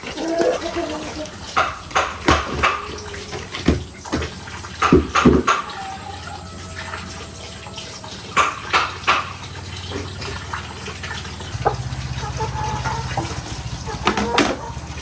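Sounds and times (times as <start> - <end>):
water running and splashing: 0.0 - 15.0
sharp knocks: 1.5 - 5.8, 8.4 - 9.6
low hum: 9.3 - 15.0.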